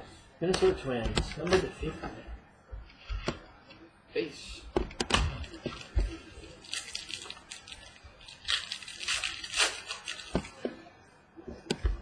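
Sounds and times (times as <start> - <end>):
cards rustling and crinkling: 5.4 - 10.6.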